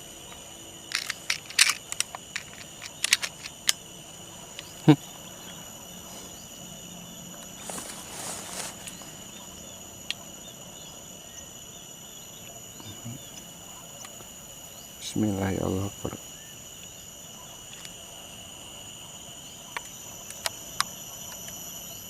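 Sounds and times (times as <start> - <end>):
crickets chirping: 0.0 - 22.0
rustle: 0.0 - 22.0.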